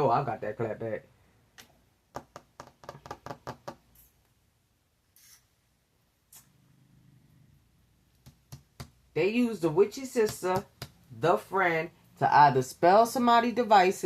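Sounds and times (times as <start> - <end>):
cards clicking and tapping: 8.2 - 9.0.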